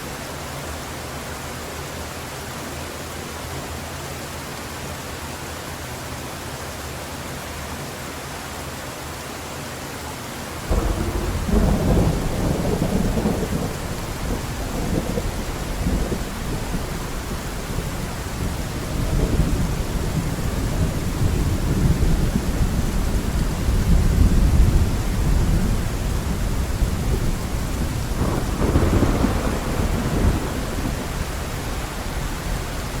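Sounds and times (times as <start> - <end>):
heavy rain hiss: 0.0 - 33.0
thunder rumbling: 10.7 - 33.0.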